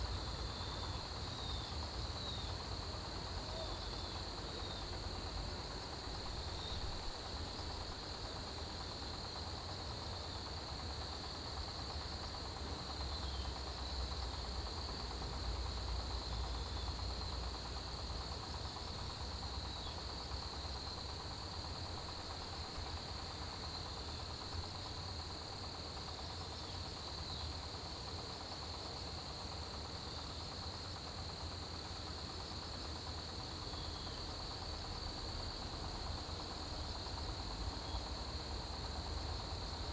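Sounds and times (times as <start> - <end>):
crickets chirring: 0.0 - 39.9
high pulsing insect trill: 10.0 - 39.9.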